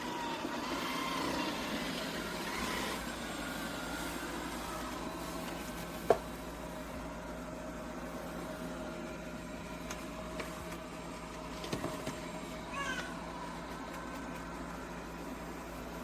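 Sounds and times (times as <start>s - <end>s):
robot vacuum motor whirring: 0.0s - 6.1s.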